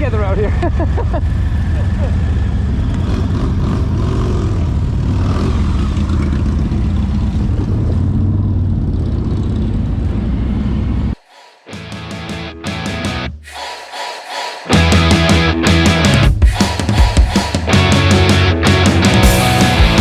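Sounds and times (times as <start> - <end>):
motorcycle engines droning: 0.0 - 11.2.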